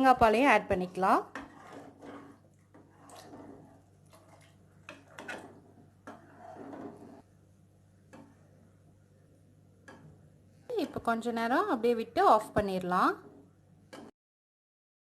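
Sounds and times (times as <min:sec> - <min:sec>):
stirring noise: 0:00.9 - 0:07.4, 0:08.0 - 0:08.8, 0:12.3 - 0:14.1.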